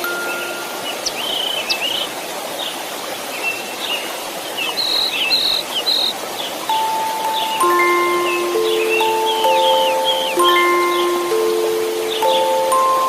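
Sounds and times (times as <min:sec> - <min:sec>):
small birds chirping: 0:00.0 - 0:13.0
white-noise hiss: 0:00.0 - 0:13.0
soft chime note: 0:06.7 - 0:13.0.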